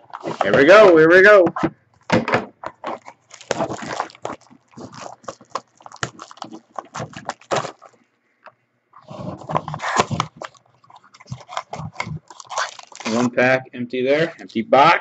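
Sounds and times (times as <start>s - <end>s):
card packaging crinkling and tearing: 2.9s - 8.0s, 9.4s - 13.4s.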